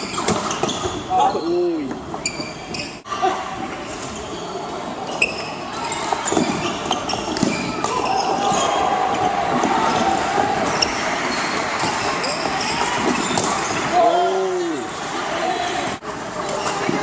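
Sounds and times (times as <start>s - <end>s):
shoes squeaking on floor: 0.0s - 3.1s, 3.8s - 8.8s, 10.6s - 14.0s.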